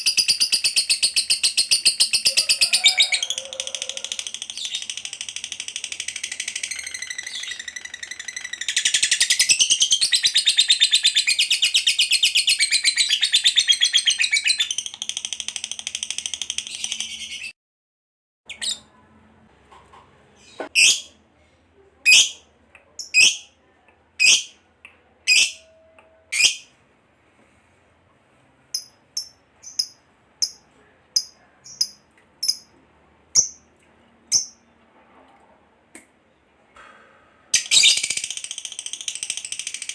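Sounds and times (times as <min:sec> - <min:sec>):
bird high-pitched chatter: 0:00.0 - 0:17.5
bird chirps: 0:06.0 - 0:15.3.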